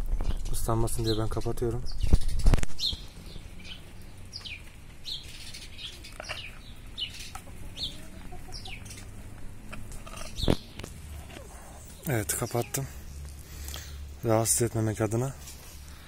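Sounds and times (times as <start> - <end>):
bird chirping: 0.2 - 14.4.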